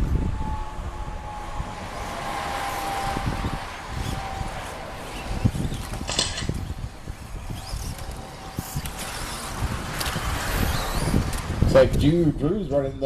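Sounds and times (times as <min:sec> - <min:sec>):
high-pitched whine: 0:00.0 - 0:11.9
rc truck motors and tyres: 0:00.0 - 0:13.0.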